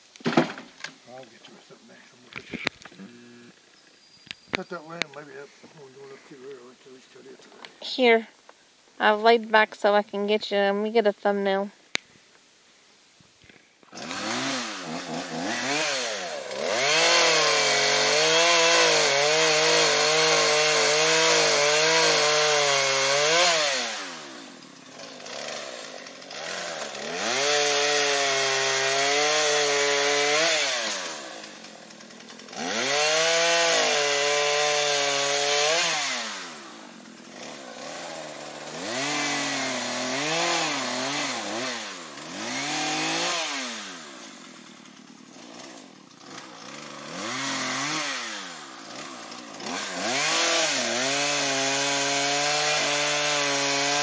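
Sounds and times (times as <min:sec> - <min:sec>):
chainsaw cutting wood: 0:02.4 - 0:03.6, 0:13.9 - 0:54.0.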